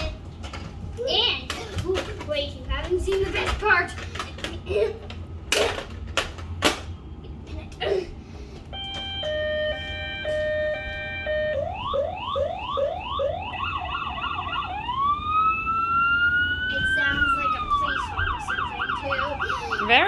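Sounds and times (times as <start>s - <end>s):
electronic toy siren: 8.7s - 20.0s.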